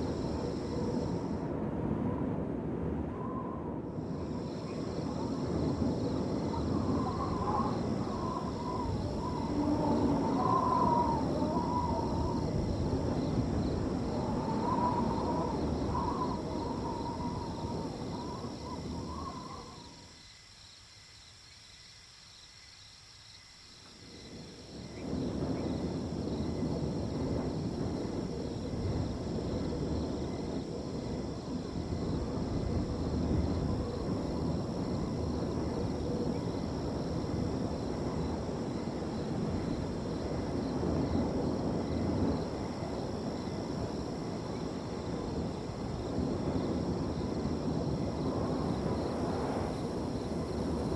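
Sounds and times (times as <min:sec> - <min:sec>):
wind gusting: 0:00.0 - 0:20.2, 0:24.2 - 0:50.9
crickets trilling: 0:00.0 - 0:50.9
wavering wind whistle: 0:03.0 - 0:20.0.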